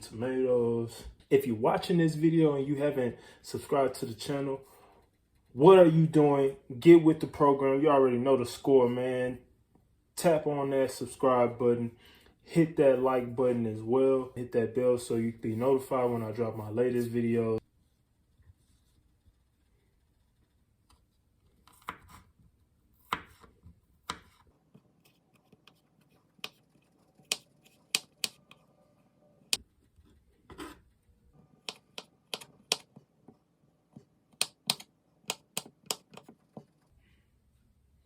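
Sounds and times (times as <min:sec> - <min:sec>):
knife chopping on cutting board: 0:23.0 - 0:24.4.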